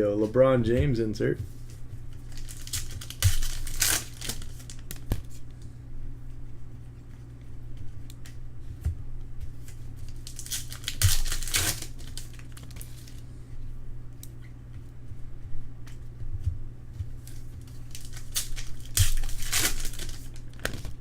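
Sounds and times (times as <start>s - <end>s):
wrappers crinkling and tearing: 2.1s - 5.5s, 9.6s - 13.2s, 17.2s - 21.0s.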